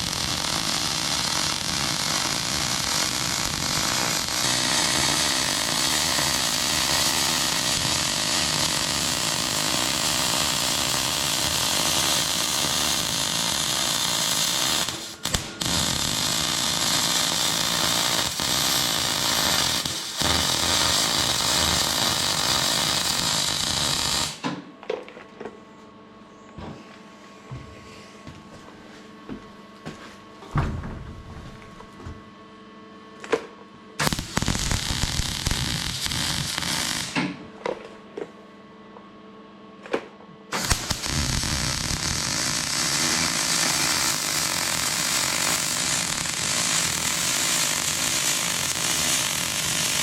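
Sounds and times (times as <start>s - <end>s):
electric arc welding: 0.0s - 24.4s, 34.0s - 37.3s, 40.5s - 50.0s.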